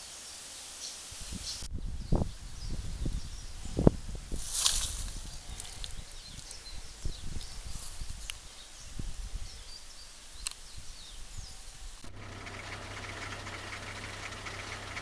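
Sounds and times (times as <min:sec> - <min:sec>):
steady hiss: 0:00.0 - 0:01.7
wind rumble on microphone: 0:01.1 - 0:12.1
birds chirping: 0:05.1 - 0:15.0
constant low hum: 0:11.3 - 0:15.0.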